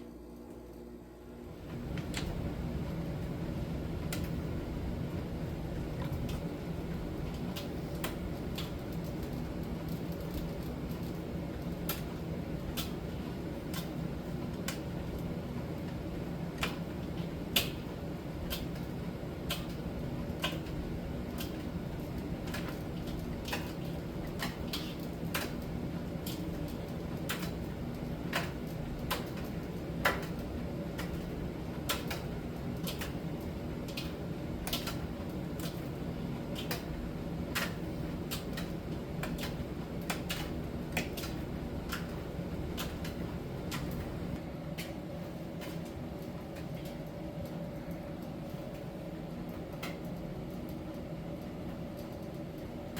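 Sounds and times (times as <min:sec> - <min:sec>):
tumble dryer humming: 0:00.0 - 0:52.9.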